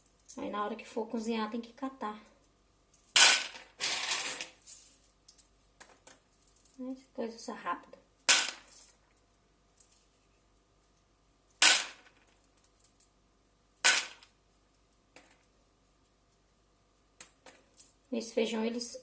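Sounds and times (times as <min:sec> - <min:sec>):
hard objects clacking: 0:03.0 - 0:06.8, 0:13.8 - 0:14.4.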